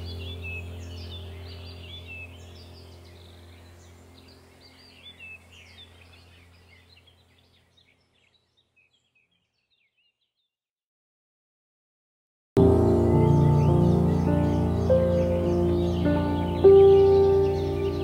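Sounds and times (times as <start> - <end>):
low steady hum: 0.0 - 8.2
small birds chirping: 0.0 - 10.6, 12.6 - 18.0.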